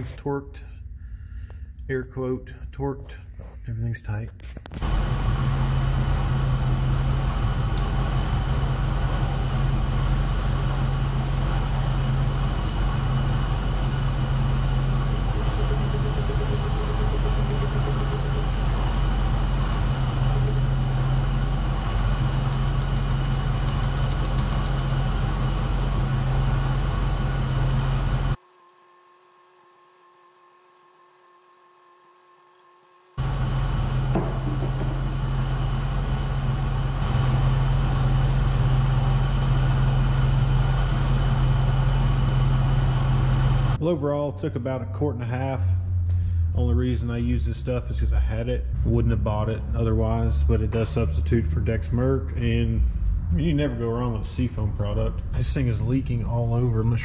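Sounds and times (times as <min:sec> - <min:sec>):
faint hum: 0:00.0 - 0:28.4, 0:32.6 - 0:57.0
car engine idling: 0:04.8 - 0:28.4.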